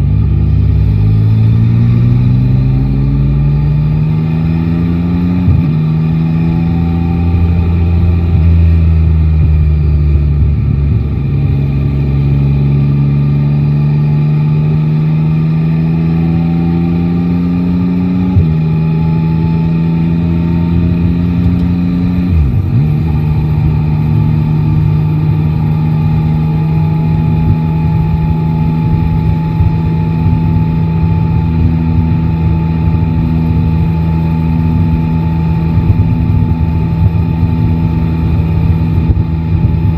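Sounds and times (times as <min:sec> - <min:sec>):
motorcycle engine under way: 0:00.0 - 0:39.9.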